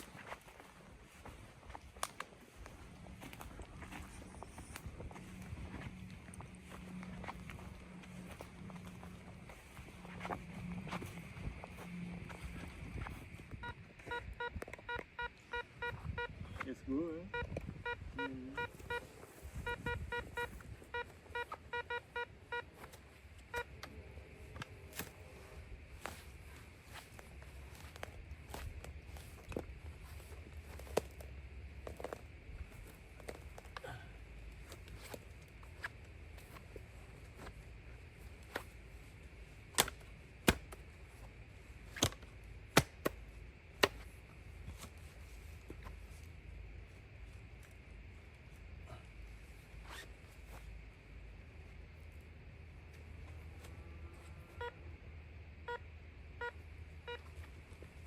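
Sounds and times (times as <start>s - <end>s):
low steady background noise: 0.0s - 58.0s
metal detector short beeps: 13.6s - 16.4s, 17.3s - 22.7s.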